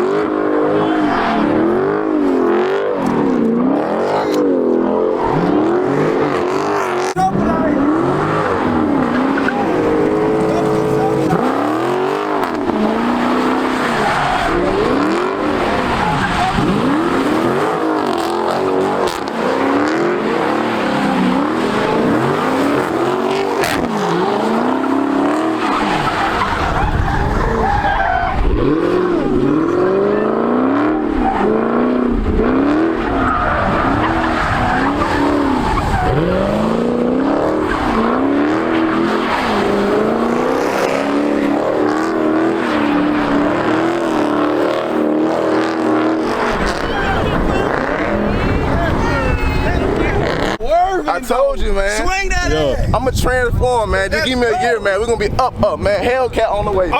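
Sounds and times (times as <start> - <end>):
car engine revving: 0.0 - 50.6
tyres squealing: 5.1 - 31.8, 32.8 - 36.7.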